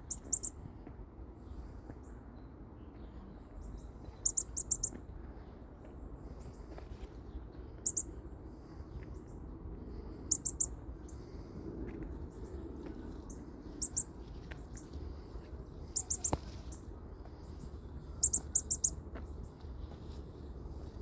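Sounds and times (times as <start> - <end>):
baby bird chirping: 0.0 - 0.6, 4.2 - 4.9, 7.8 - 8.1, 10.3 - 10.8, 13.8 - 14.1, 15.9 - 16.4, 18.2 - 19.0.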